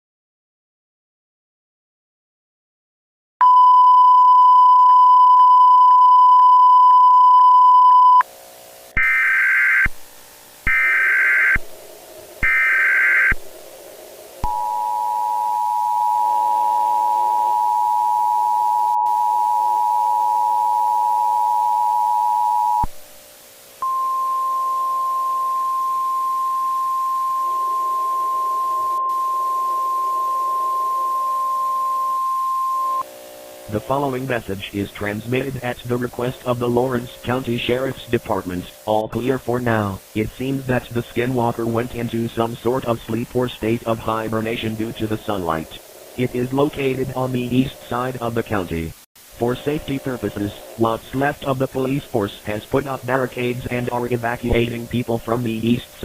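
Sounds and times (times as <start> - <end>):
two-tone attention signal: 3.4 - 8.2, 14.4 - 22.9, 23.8 - 33.0
long attention tone: 3.4 - 8.3, 14.4 - 22.9, 23.8 - 33.1
steady single beep: 3.4 - 8.3, 14.4 - 22.9, 23.8 - 33.0
warbling data bursts: 12.4 - 13.4.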